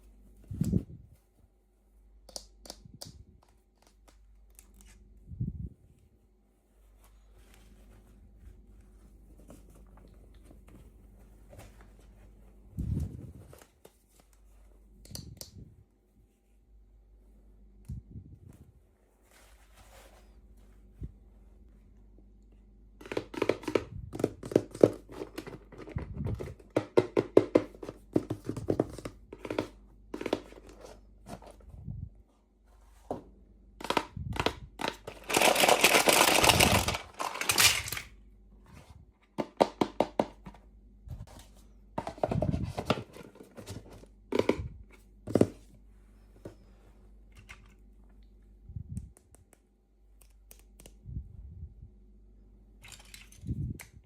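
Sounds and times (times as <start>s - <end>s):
packaging crinkling: 35.0s - 38.1s.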